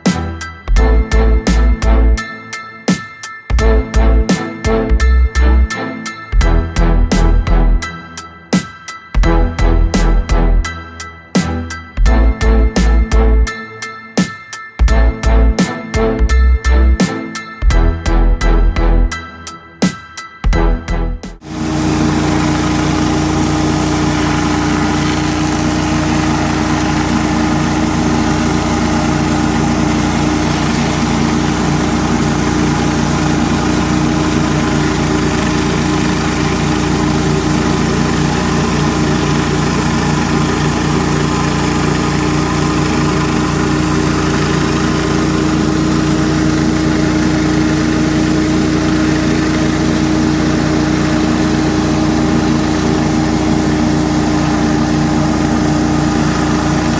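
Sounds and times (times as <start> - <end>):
pressure washer engine running: 21.4 - 56.9.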